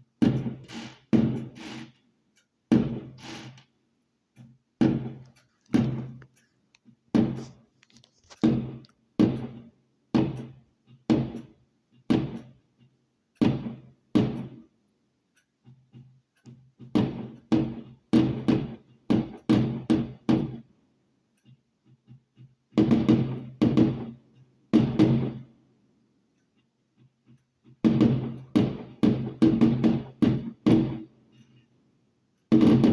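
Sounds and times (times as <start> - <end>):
firework bangs: 0.2 - 1.9, 24.8 - 25.4, 27.8 - 31.1, 32.5 - 32.9.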